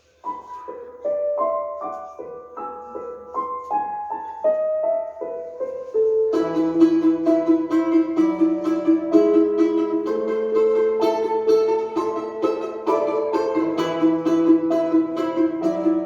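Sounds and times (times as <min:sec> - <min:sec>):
piano melody: 0:00.0 - 0:16.0
rapid plucked-string strokes: 0:06.3 - 0:16.0.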